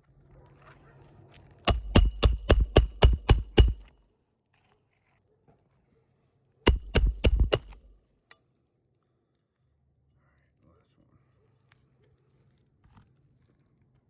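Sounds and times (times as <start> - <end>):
hammer striking roofing nails: 1.7 - 3.9, 6.7 - 7.9.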